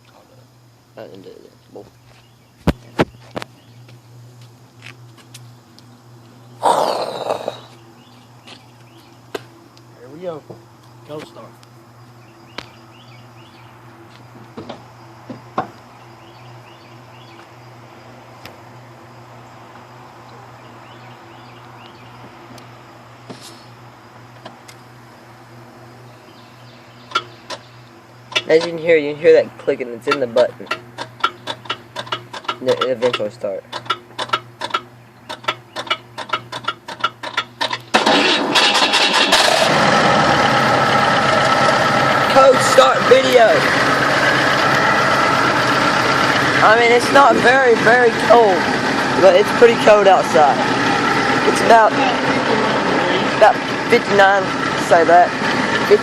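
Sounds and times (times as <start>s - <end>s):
steady low hum: 0.0s - 38.0s
car engine starting and running: 23.8s - 56.0s
starter clicking: 30.1s - 39.9s.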